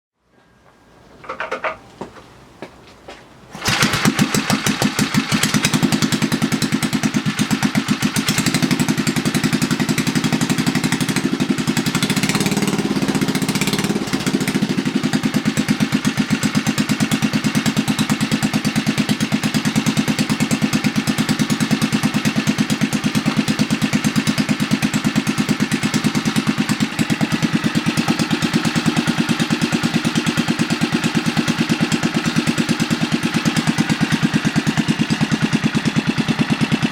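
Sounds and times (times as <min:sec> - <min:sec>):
small engine running: 0:03.6 - 0:36.9.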